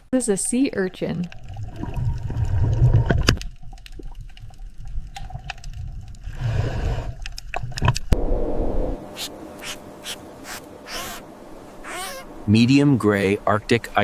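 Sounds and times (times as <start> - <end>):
underwater churning rumble: 1.4 - 9.1.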